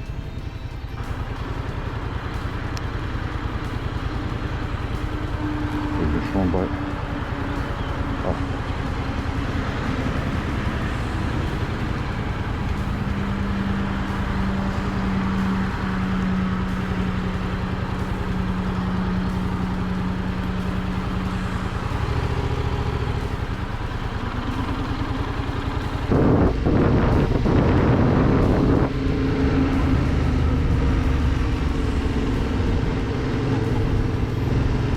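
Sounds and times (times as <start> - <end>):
motorcycle engine running: 0.0 - 34.9
rush of noise: 0.0 - 34.9.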